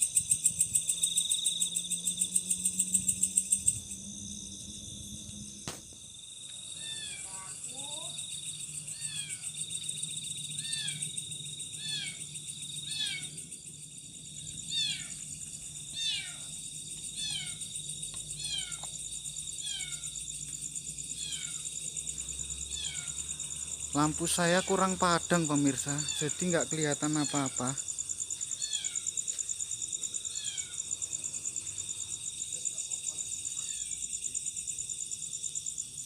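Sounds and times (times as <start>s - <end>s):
night insects chorus: 0.0s - 36.0s.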